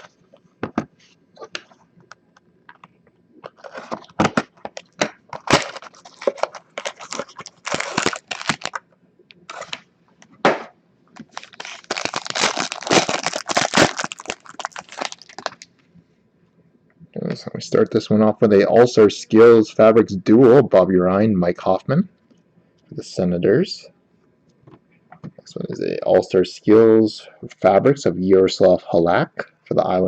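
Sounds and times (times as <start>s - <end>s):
packaging clicks and rustles: 3.4s - 8.8s, 9.5s - 9.8s, 11.2s - 15.7s
wrapper crinkling and tearing: 3.5s - 8.8s, 9.5s - 9.9s, 11.2s - 15.7s.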